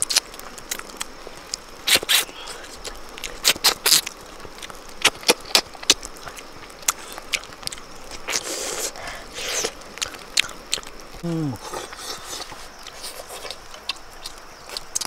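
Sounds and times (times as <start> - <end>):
chewing and lip smacking: 0.0 - 15.0
sucking sounds: 11.2 - 13.4
wet mouth clicks: 11.6 - 15.0.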